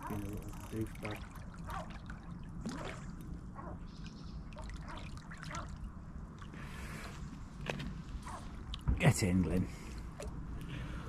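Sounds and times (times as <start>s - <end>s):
water splashing and trickling: 0.0s - 8.8s.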